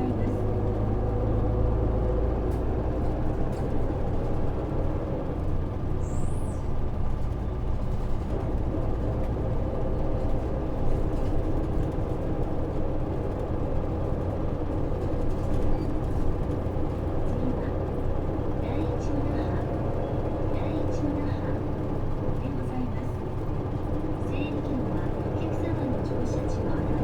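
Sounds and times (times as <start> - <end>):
bus diesel engine running: 0.0 - 27.0.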